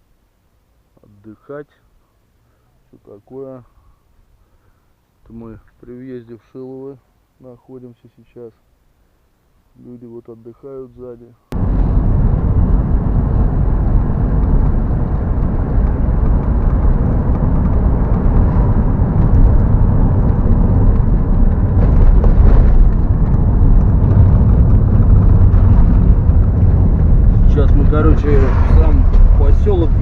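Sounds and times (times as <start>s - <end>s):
car engine and road noise: 11.5s - 30.0s.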